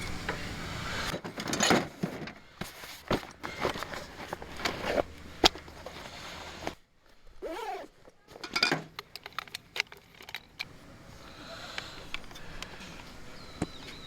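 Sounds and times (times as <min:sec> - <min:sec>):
light metallic clinks: 0:08.4 - 0:10.7.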